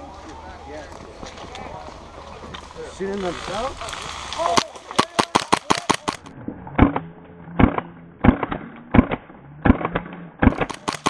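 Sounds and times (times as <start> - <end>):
airsoft gun shots: 4.5 - 7.0, 7.6 - 11.0.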